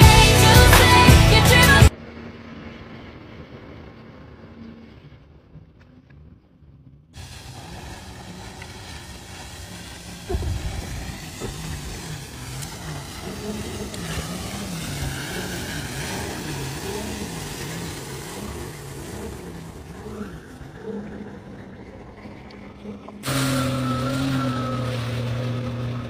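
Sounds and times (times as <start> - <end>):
jet ski engine running: 0.0 - 26.0
rush of wind and water: 7.2 - 26.0
heavy thump: 10.3 - 11.6.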